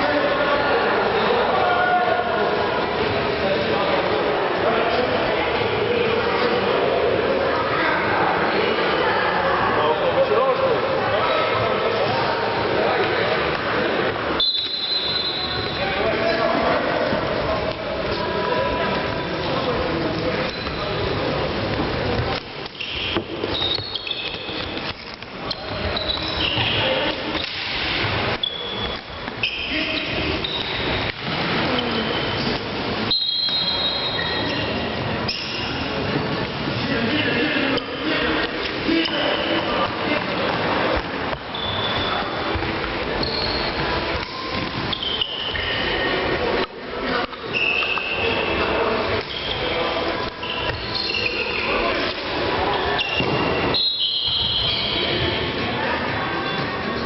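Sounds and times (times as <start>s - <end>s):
sneakers squeaking on court floor: 14.3s - 36.0s, 38.9s - 46.0s, 47.4s - 55.6s.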